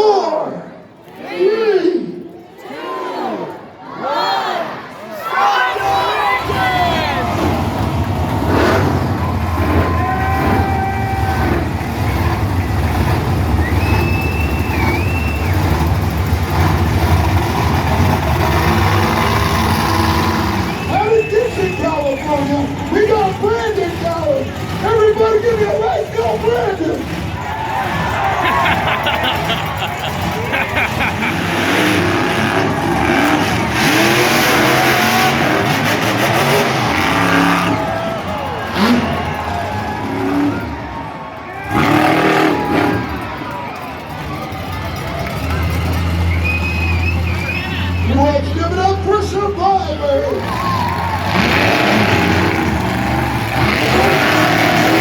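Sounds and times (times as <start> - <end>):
crowd shouting: 1.0 - 12.7, 25.2 - 48.9, 49.6 - 55.0
monster truck engines rumbling: 2.2 - 55.0.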